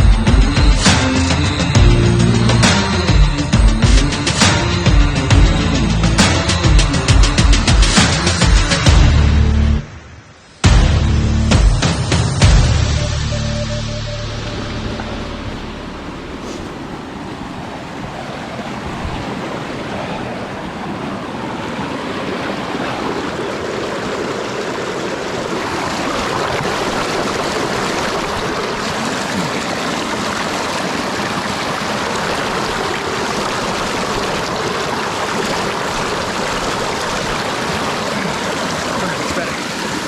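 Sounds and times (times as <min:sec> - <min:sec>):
rushing stream: 0:14.1 - 0:40.0.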